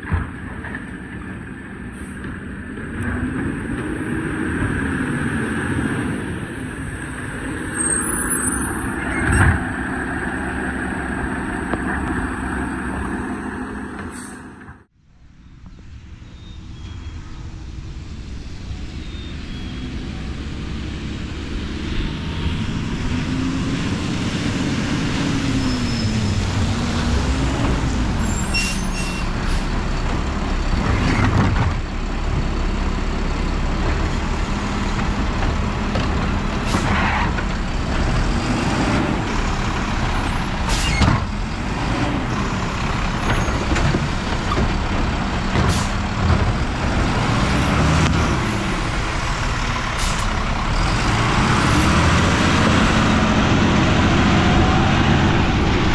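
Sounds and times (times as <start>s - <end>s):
air brake hisses and clanks: 14.0s - 14.7s, 40.6s - 41.1s, 45.7s - 46.0s, 50.0s - 50.4s
truck engine revving: 18.6s - 55.9s.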